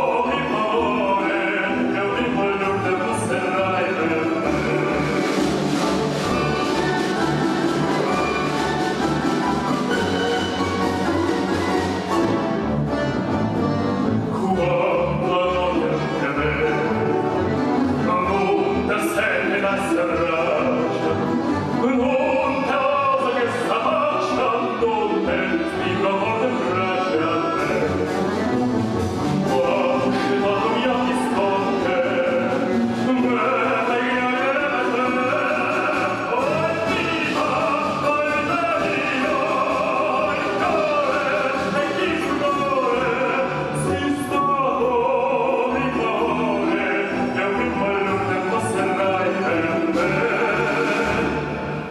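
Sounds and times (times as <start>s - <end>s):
orchestra playing: 0.0s - 51.9s
person singing: 14.3s - 28.5s, 29.4s - 51.9s.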